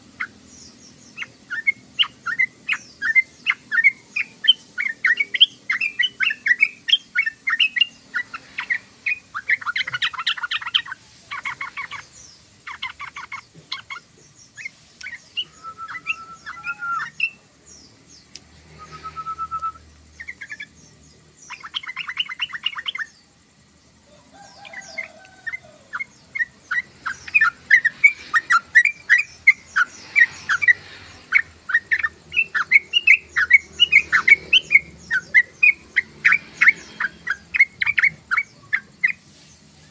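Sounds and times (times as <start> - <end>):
bird chattering with sharp chirps: 0.0 - 39.9
short whistled bird notes: 18.8 - 19.8.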